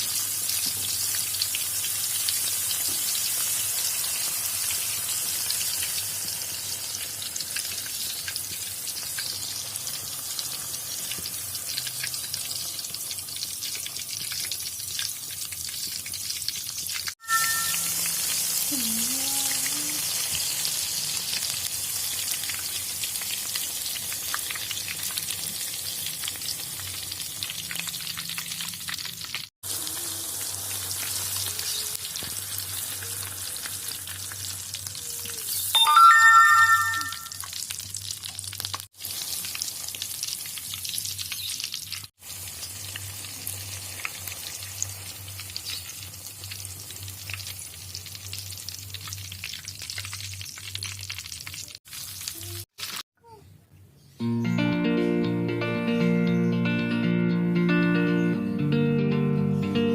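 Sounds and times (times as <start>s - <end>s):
egg sizzling in hot oil: 0.0s - 53.0s.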